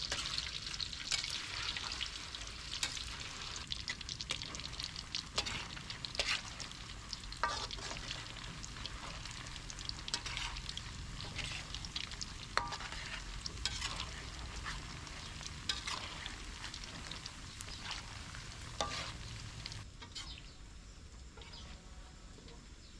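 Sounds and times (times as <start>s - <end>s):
food sizzling in hot oil: 0.0s - 22.9s.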